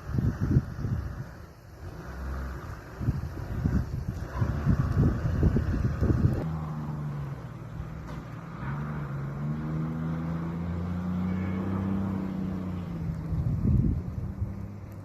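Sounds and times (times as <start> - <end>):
wind on microphone: 0.0 - 1.5, 2.5 - 6.5, 12.8 - 15.0
car engine revving: 0.0 - 15.0.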